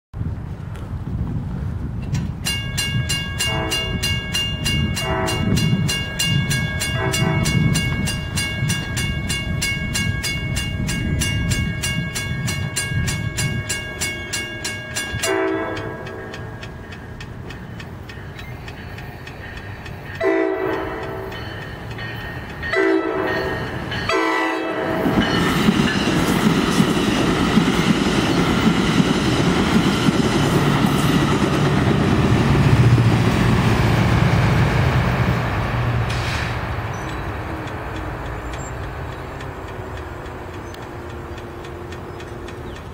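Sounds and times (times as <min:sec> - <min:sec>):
diesel locomotive drone: 0:00.2 - 0:42.9
train cars rumbling and clacking: 0:00.4 - 0:42.9
crossing bell ticking: 0:02.4 - 0:27.7
train horn blasts: 0:03.3 - 0:08.4, 0:14.8 - 0:16.6, 0:20.2 - 0:21.6, 0:22.6 - 0:25.5.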